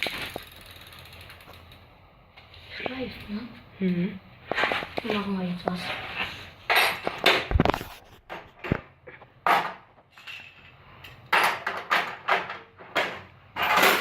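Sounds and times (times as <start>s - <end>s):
metal tools knocking and clinking: 6.7s - 7.6s, 9.4s - 14.0s.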